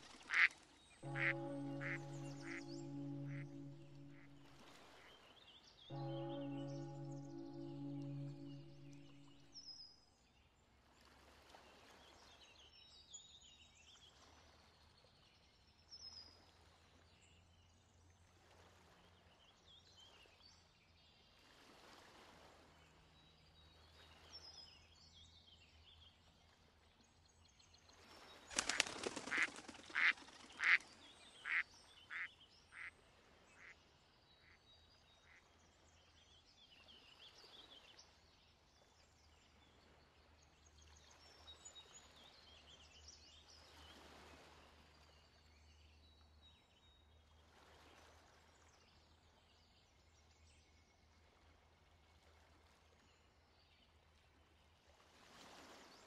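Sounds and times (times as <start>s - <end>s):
faint songbird chirps: 1.0s - 4.4s
duck quacking: 1.1s - 2.6s, 29.3s - 30.8s.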